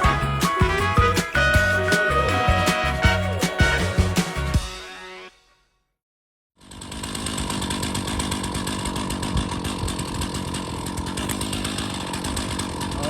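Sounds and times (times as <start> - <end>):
chainsaw cutting a log: 6.6 - 13.0.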